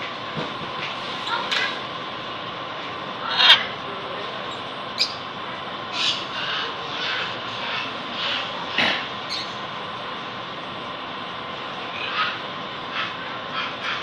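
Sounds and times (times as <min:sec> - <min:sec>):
steady background noise: 0:00.0 - 0:14.0
bird calling: 0:04.5 - 0:05.3, 0:05.9 - 0:08.6, 0:09.2 - 0:09.7.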